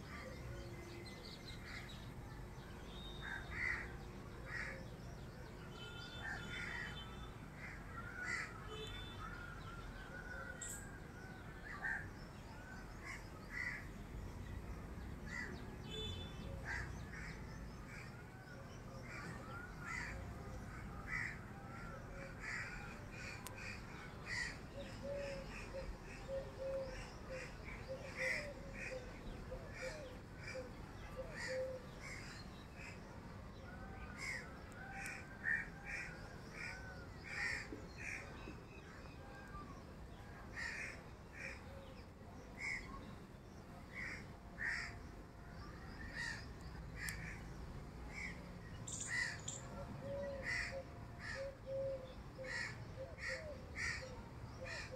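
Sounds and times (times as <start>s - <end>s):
low background noise: 0.0s - 54.9s
birds calling: 22.4s - 33.1s, 48.1s - 54.9s.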